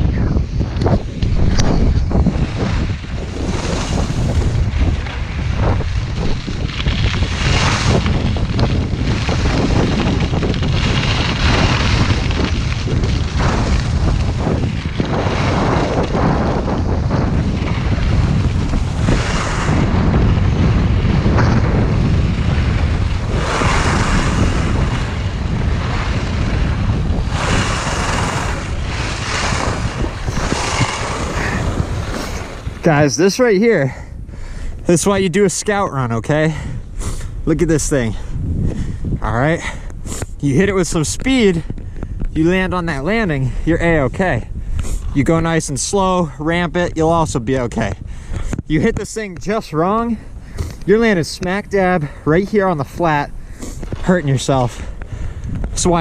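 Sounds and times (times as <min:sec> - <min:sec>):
wind buffeting microphone: 0:00.0 - 0:56.0
skis swishing on snow: 0:01.0 - 0:33.6.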